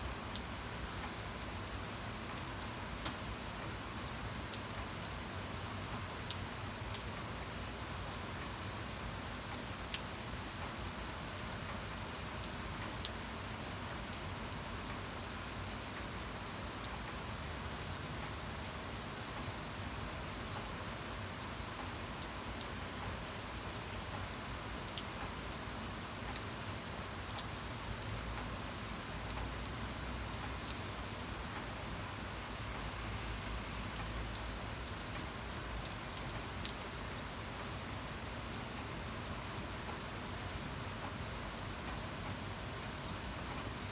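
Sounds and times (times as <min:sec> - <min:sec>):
steady rain hiss: 0:00.0 - 0:43.9.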